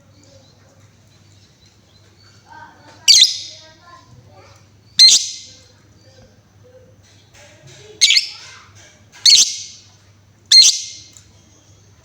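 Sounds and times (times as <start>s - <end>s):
faint bird chirping: 0.0s - 4.0s, 4.8s - 6.9s, 7.9s - 8.6s, 9.2s - 11.8s
lovebird shrill calls: 3.1s - 3.6s, 5.0s - 5.6s, 8.0s - 8.4s, 9.2s - 9.8s, 10.5s - 11.1s.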